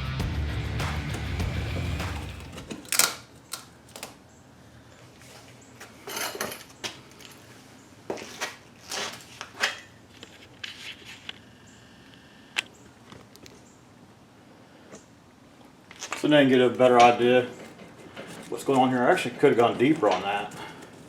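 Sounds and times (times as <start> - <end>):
tools clicking and knocking: 1.1 - 4.2.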